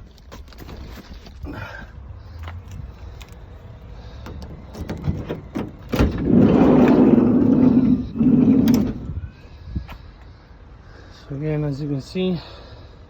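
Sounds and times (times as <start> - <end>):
sliding door rumbling along runner: 4.1 - 9.2.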